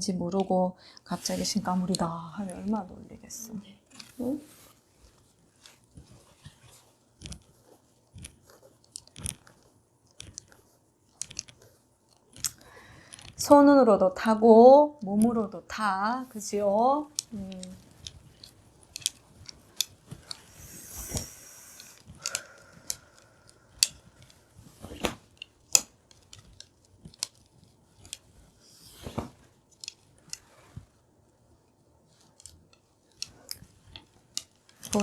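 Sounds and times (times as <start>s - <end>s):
small hard objects clicking: 8.1s - 13.5s, 16.4s - 28.3s, 32.2s - 35.0s.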